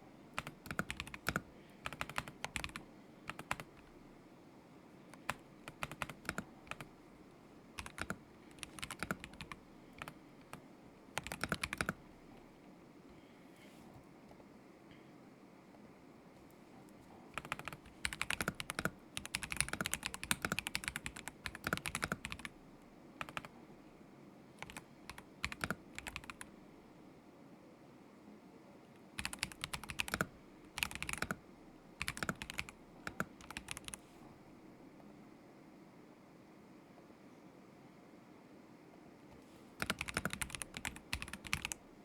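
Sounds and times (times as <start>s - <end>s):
mechanical keyboard typing: 0.4s - 3.9s, 5.1s - 6.9s, 7.8s - 10.6s, 11.2s - 12.4s, 17.3s - 22.6s, 23.2s - 23.5s, 24.6s - 26.5s, 29.2s - 31.4s, 32.0s - 34.0s, 39.8s - 41.8s.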